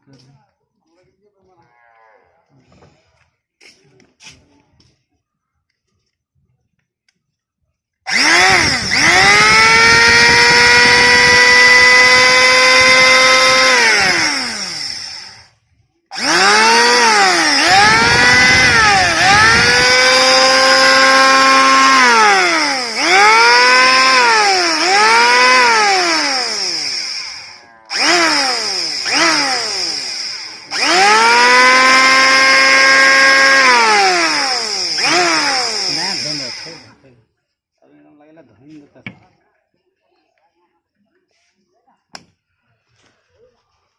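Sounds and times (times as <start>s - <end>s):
electric planer motor whining: 8.1s - 15.5s, 16.1s - 37.0s.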